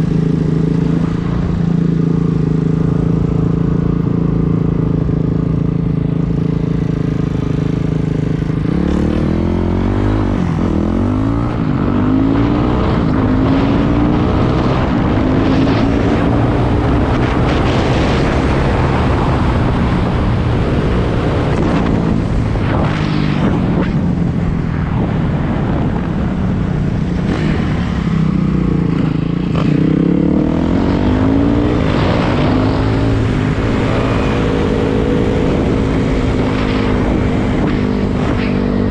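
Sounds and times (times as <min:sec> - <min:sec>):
dirt bike engine revving: 0:08.6 - 0:24.4, 0:27.2 - 0:38.9.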